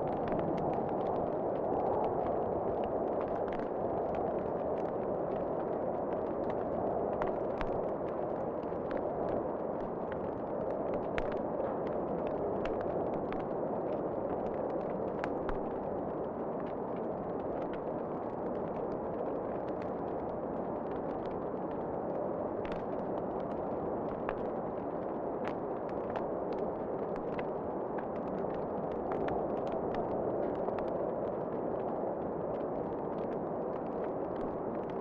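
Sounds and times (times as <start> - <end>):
wood fire crackling and popping: 22.5 - 35.0.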